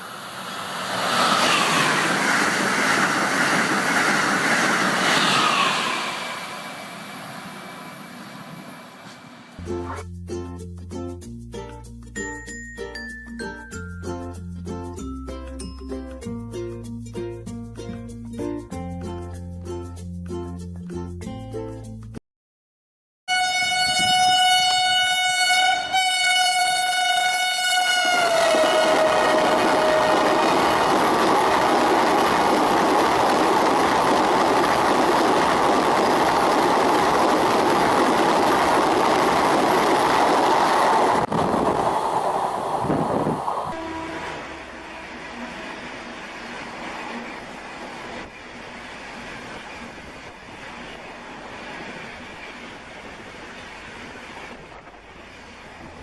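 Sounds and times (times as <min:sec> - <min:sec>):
high-speed train passing: 0:00.0 - 0:10.0, 0:23.3 - 0:56.0
train horn: 0:23.3 - 0:31.0, 0:43.6 - 0:46.5.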